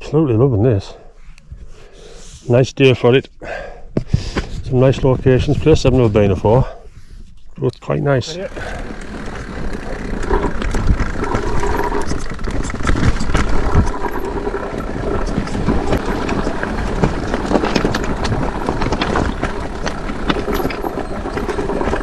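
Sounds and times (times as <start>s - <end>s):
wind: 0.0s - 22.0s
tyres rumbling on rough trail: 8.0s - 22.0s
bike rattling and knocking: 8.4s - 22.0s.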